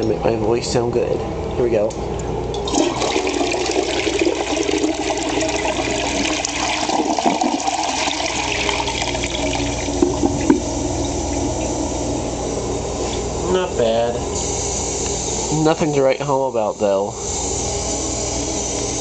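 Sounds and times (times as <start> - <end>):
toilet flushing: 2.5 - 13.3.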